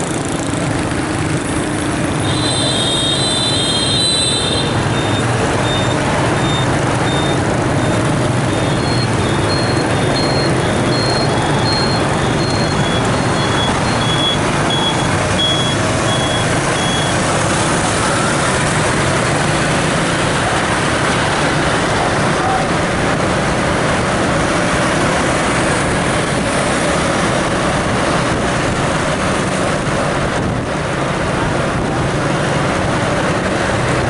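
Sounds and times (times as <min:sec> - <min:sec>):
vehicle engine rumble: 0:00.0 - 0:34.0
short high electronic beeps: 0:04.9 - 0:17.1
higher electronic beeps: 0:04.9 - 0:17.2.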